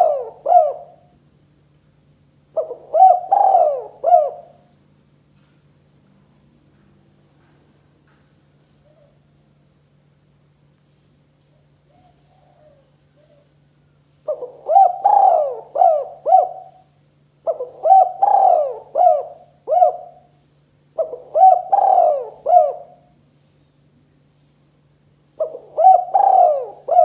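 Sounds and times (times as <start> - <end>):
dove cooing: 0.0 - 1.2, 2.5 - 4.7, 11.9 - 13.5, 14.2 - 20.4, 21.0 - 23.2, 25.4 - 27.0.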